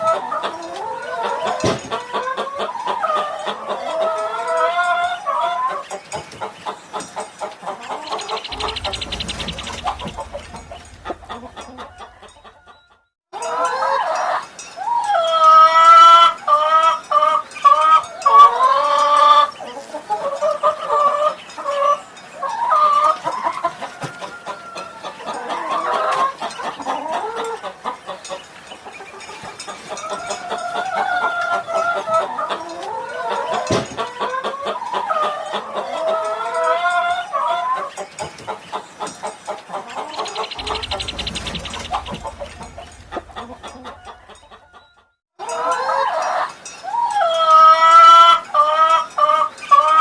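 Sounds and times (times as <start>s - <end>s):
chickens clucking: 0.0s - 50.0s.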